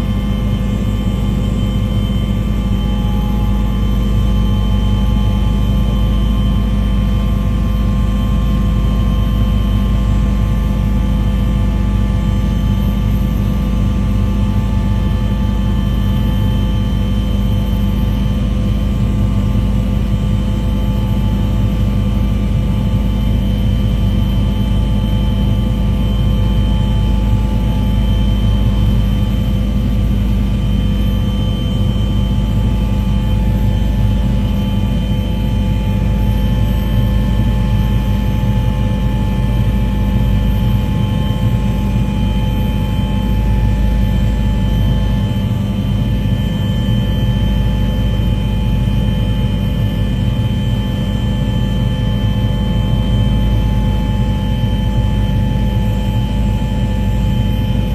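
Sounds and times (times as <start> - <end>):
aircraft engine drone: 0.0 - 57.9.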